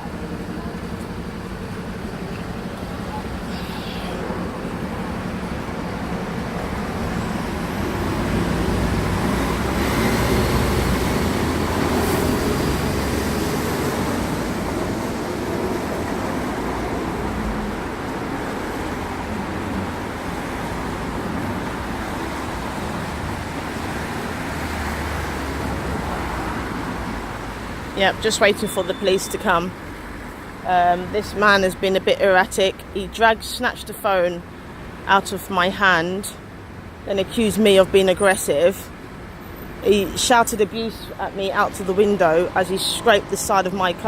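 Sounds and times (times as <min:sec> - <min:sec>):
vehicle passing: 0:00.0 - 0:31.3
road traffic rumble: 0:00.0 - 0:44.0.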